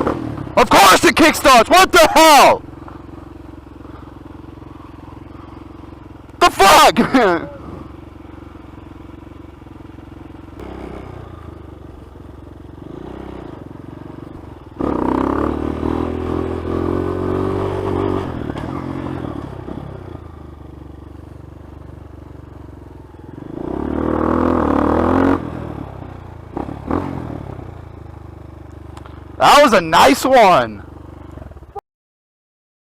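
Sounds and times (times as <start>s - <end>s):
dirt bike engine revving: 0.0s - 12.1s, 12.7s - 20.3s, 23.2s - 27.8s.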